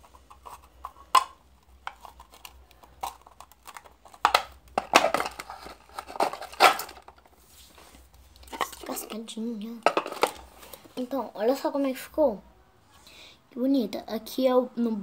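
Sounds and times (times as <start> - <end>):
containers and utensil clicking: 0.0 - 7.3, 8.4 - 9.2, 9.8 - 10.8.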